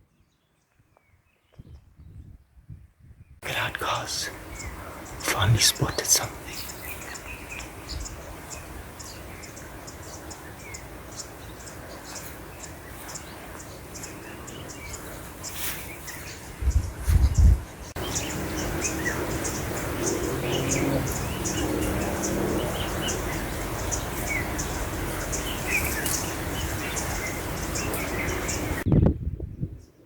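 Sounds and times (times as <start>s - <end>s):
wild birds chirping: 0.0s - 2.6s, 3.2s - 30.0s
low thuds on microphone: 16.6s - 17.6s.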